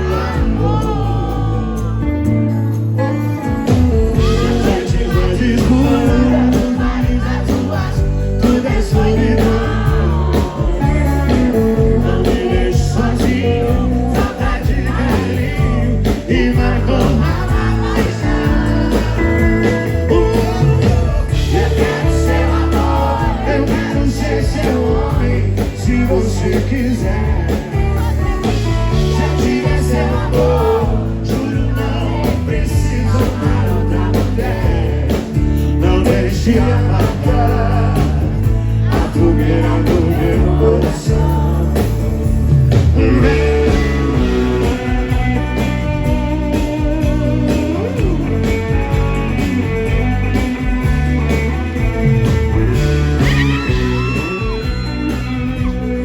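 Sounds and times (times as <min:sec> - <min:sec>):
person singing: 0:00.0 - 0:42.2, 0:43.0 - 0:45.8
live band playing: 0:00.0 - 0:56.0.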